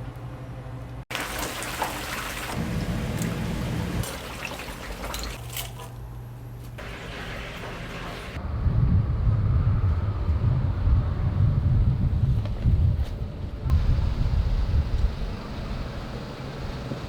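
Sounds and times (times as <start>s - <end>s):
oil sizzling and crackling: 1.1s - 5.8s
low hum: 6.0s - 17.0s.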